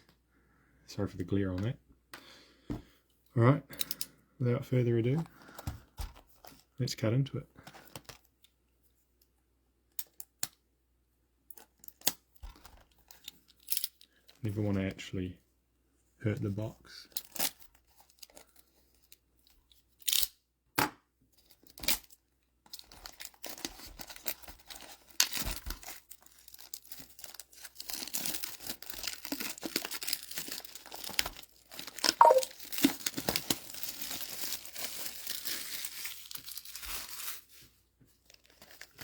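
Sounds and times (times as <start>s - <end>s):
plastic wrap crinkling and tearing: 21.4s - 39.0s.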